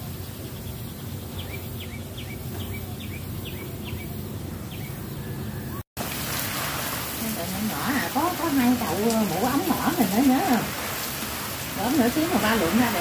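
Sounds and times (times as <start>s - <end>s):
small bird chirping: 0.1s - 5.8s.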